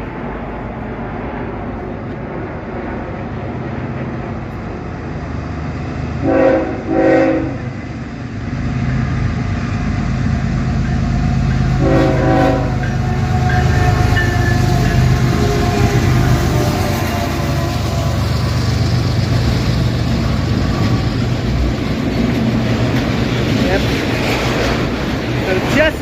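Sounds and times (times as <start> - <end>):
diesel locomotive rumble: 0.0 - 26.0
locomotive air horn blasts: 6.2 - 7.7, 11.8 - 17.9.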